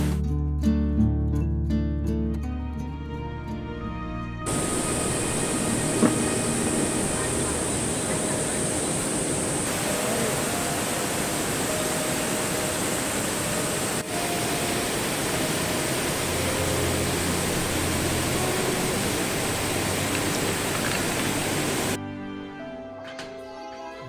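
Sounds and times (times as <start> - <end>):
flowing river water: 4.5 - 22.0.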